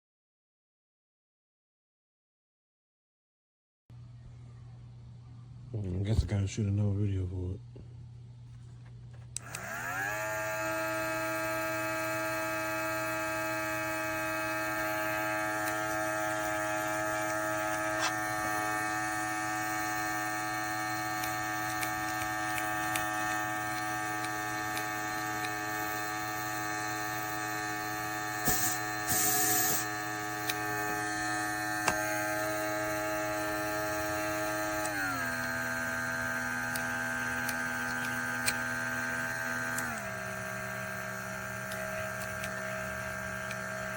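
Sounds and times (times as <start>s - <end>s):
compressor motor whirring: 9.2s - 43.9s
air hiss: 28.4s - 29.9s.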